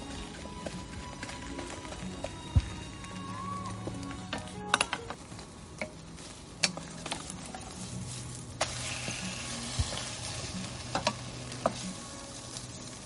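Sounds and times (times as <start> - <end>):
food sizzling in a pan: 6.1 - 13.0.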